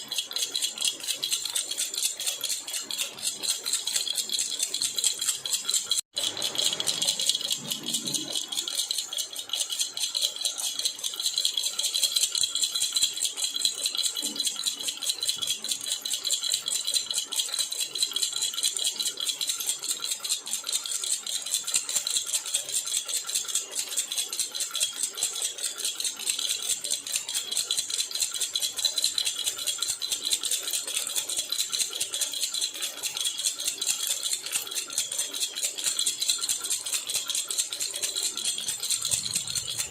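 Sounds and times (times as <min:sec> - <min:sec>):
baby rattle shaken: 0:00.0 - 0:14.5, 0:24.6 - 0:39.9.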